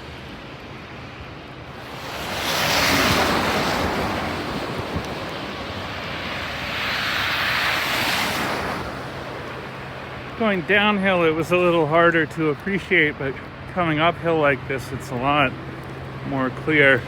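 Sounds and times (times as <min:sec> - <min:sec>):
tyres hissing on snowy road: 0:01.7 - 0:10.9.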